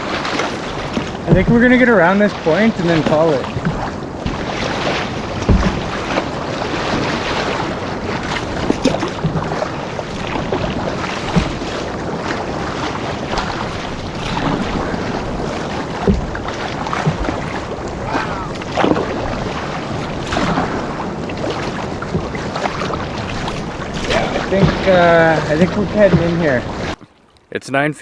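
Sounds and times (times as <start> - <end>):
water slapping a hull: 0.0 - 28.0.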